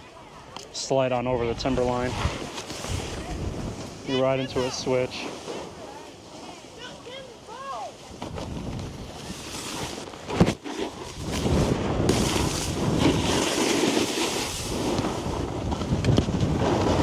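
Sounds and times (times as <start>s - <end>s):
wind buffeting microphone: 0.0s - 17.0s
snowboard scraping over snow: 0.9s - 17.0s.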